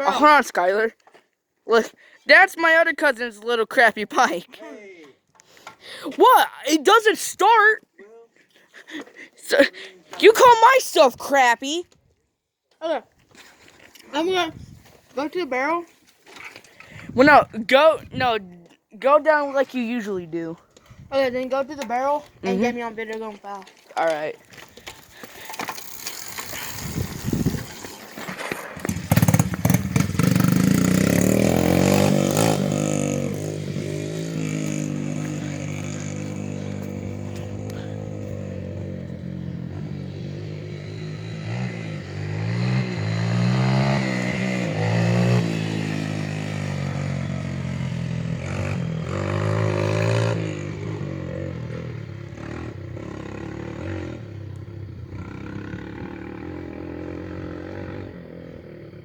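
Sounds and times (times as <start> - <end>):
dirt bike engine revving: 17.0 - 18.4, 25.1 - 59.0
scraping and clatter: 24.6 - 30.2.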